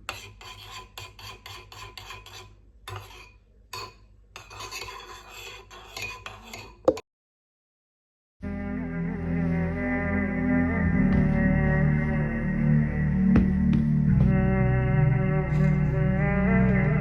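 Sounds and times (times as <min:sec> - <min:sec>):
utensil scraping a dish: 0:00.0 - 0:06.9.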